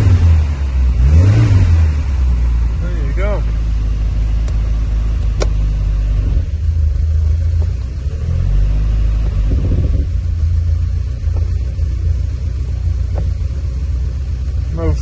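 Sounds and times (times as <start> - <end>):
car engine idling: 0.0 - 15.0
gear selector click: 5.2 - 5.6.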